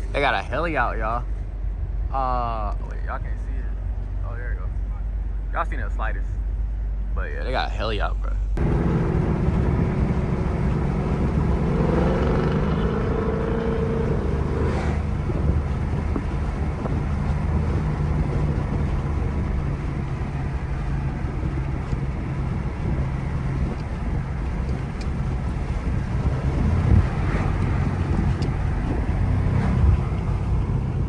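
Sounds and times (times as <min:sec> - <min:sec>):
road and wind noise: 0:00.0 - 0:31.0
car engine droning: 0:08.6 - 0:31.0.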